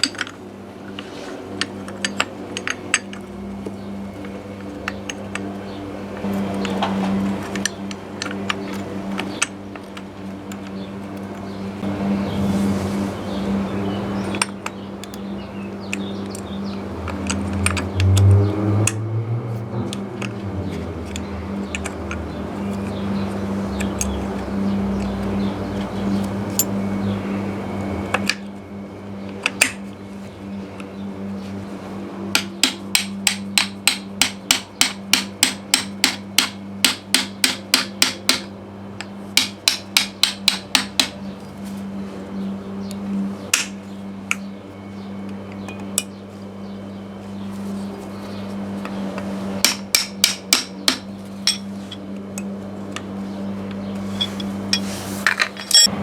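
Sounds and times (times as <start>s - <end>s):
hammer striking metal: 49.6s - 51.7s, 55.6s - 56.0s.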